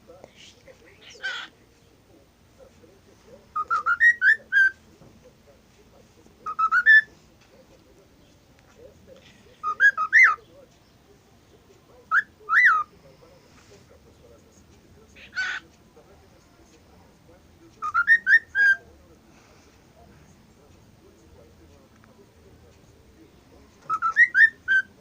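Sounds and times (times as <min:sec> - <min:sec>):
cockatiel whistling: 0:03.6 - 0:04.8, 0:06.4 - 0:07.1, 0:09.6 - 0:10.4, 0:17.8 - 0:18.8, 0:23.9 - 0:24.9.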